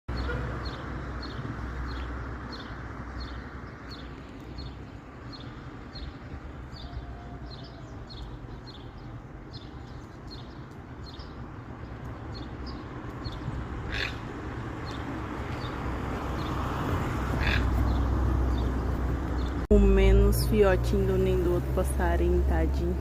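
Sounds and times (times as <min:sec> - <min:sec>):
low rumble of wind or traffic: 0:00.1 - 0:23.0
small bird calling: 0:12.4 - 0:15.8, 0:17.3 - 0:18.7.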